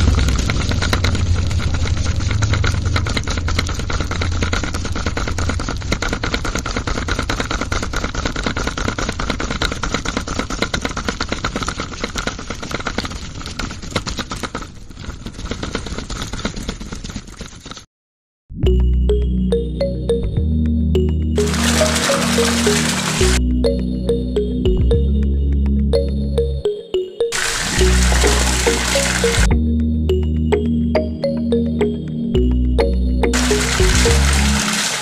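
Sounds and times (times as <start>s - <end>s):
model concrete mixer rattling: 0.0s - 17.6s.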